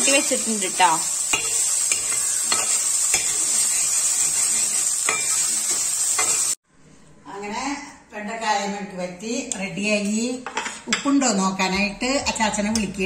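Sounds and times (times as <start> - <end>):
okra sizzling in oil: 0.0 - 6.6
spoon scraping metal pan: 1.2 - 6.6.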